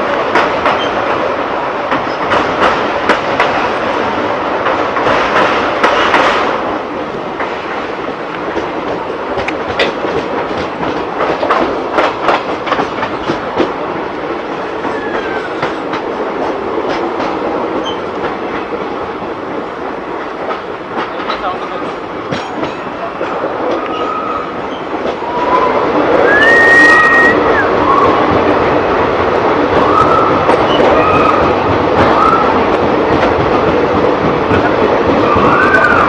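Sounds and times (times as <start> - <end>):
train wheels clattering over rail joints: 0.0 - 27.3.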